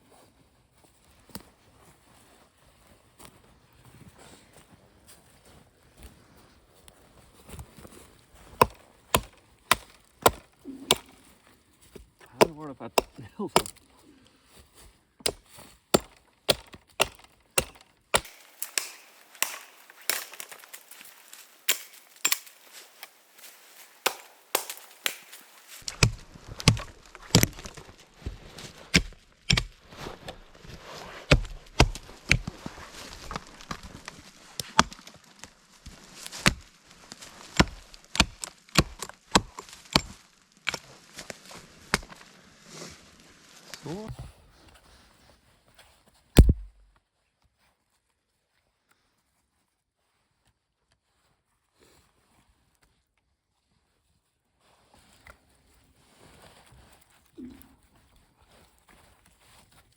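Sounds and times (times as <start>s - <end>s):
wood chopping knocks: 8.6s - 11.2s, 12.4s - 13.8s, 15.2s - 23.1s, 24.0s - 29.8s, 31.3s - 32.6s, 46.4s - 46.9s.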